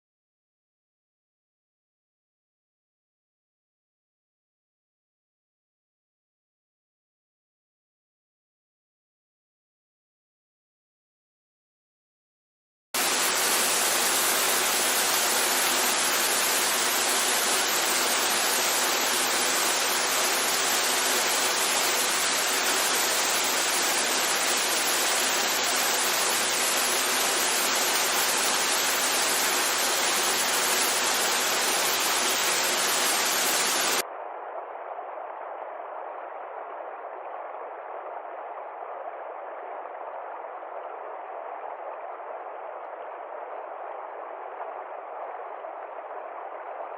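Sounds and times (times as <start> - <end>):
rushing water: 13.0 - 34.0.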